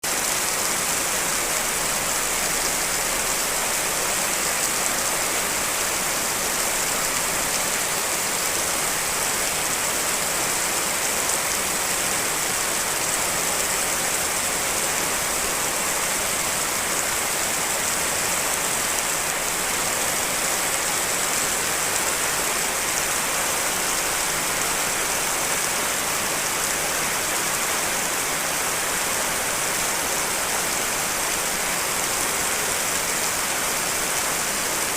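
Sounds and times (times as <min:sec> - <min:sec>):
steady rain patter: 0:00.0 - 0:34.9.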